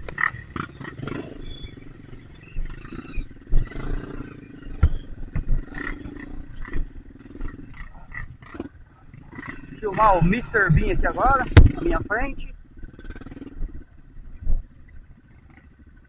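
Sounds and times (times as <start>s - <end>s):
muffled dirt bike engine revving: 0.0s - 16.0s
sharp knocks and clatter: 9.4s - 12.1s.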